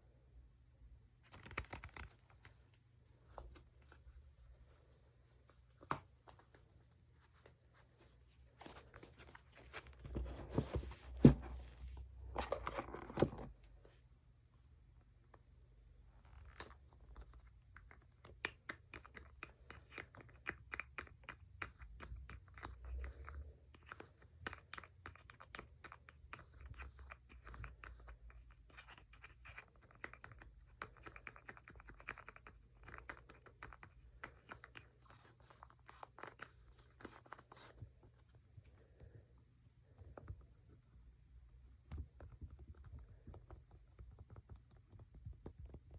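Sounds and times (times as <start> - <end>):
rustling handling: 1.2 - 13.5.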